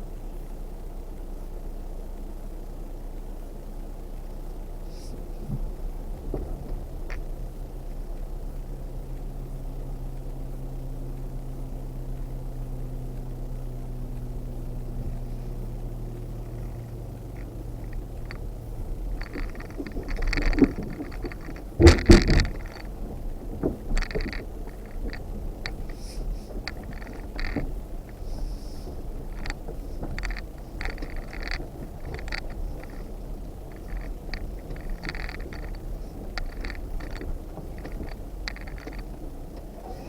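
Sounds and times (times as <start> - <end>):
off-road vehicle engine running: 0.0 - 40.0
rattling: 16.3 - 40.0
loud knocks: 19.2 - 24.8.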